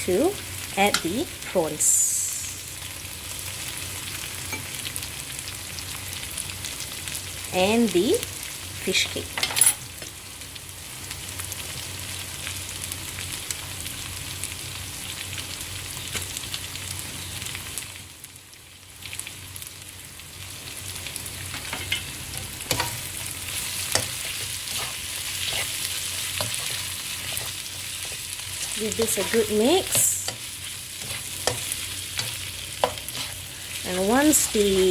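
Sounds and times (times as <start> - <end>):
food sizzling in hot oil: 0.0 - 34.9
spatula scraping a pan: 21.6 - 34.9.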